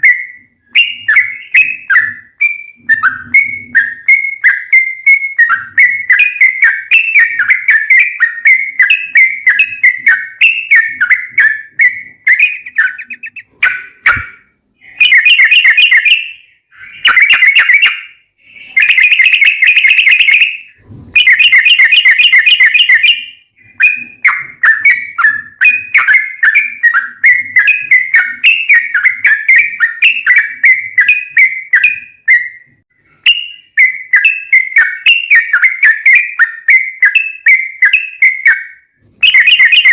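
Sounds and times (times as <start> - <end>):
bird rolling trills: 0.8 - 14.3
bulbul singing bubbly phrases: 10.8 - 14.3.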